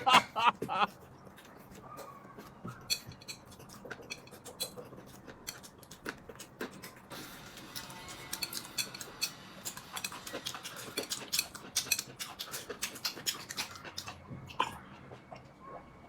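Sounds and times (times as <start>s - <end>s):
cutlery clinking on dishes: 2.7s - 5.8s, 7.8s - 12.5s.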